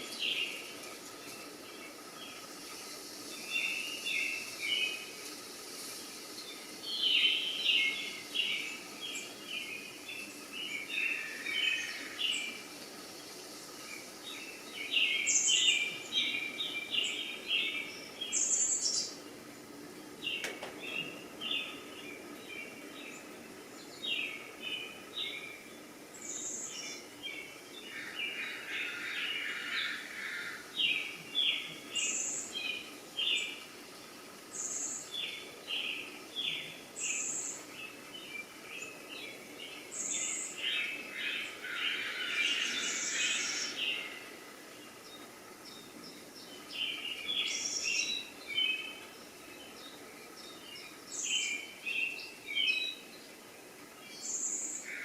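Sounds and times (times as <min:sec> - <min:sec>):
birds chirping and singing: 0:00.0 - 0:55.0
higher-pitched bird calls: 0:40.1 - 0:44.4.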